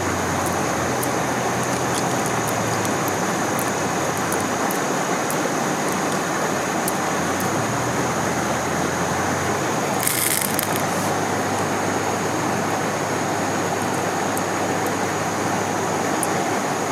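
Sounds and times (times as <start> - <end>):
stream water rushing: 0.0 - 16.9
burst of hiss: 10.0 - 11.2.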